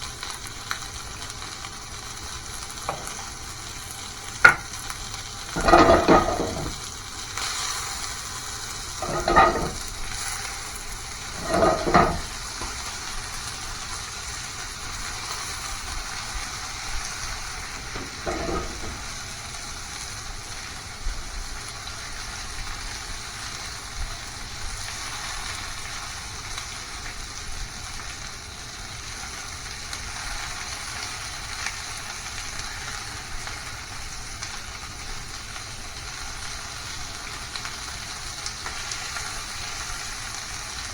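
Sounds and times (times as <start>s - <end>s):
food sizzling in a pan: 0.0s - 40.9s
stirring in a pan: 5.5s - 6.9s, 8.9s - 10.2s, 11.2s - 12.8s, 17.7s - 19.3s.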